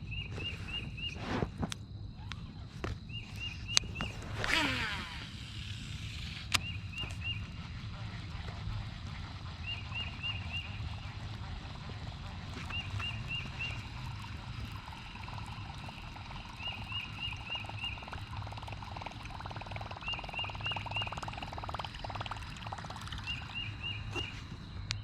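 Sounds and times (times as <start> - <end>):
water trickling and splashing: 6.5 - 24.7.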